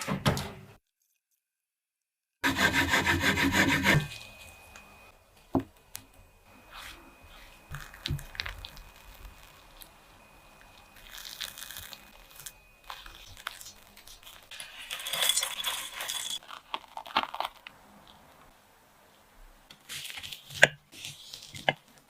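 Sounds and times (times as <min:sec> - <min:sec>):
rustling and crinkling: 0:04.1 - 0:18.5, 0:19.7 - 0:22.0.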